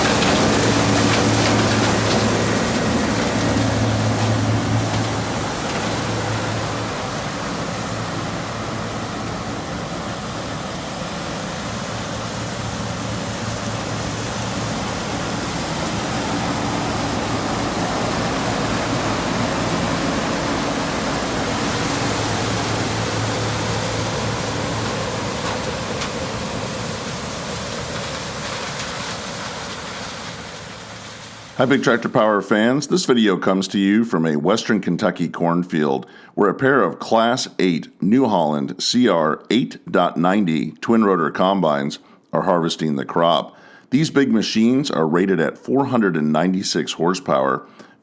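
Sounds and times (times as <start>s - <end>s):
engine hum: 0.0s - 32.2s
combine harvester rushing noise: 0.0s - 32.8s.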